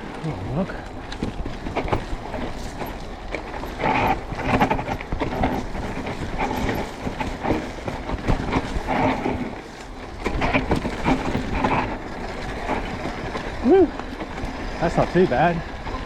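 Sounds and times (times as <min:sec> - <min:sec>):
bike rattling over bumps: 0:00.0 - 0:16.0
bike tyres on dirt trail: 0:00.0 - 0:16.0.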